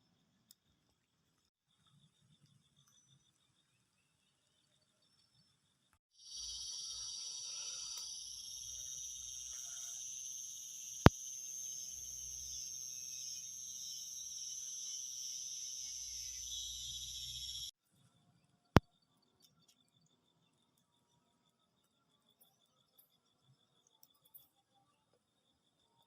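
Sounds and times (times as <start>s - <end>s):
night insects chirring: 1.7s - 17.7s.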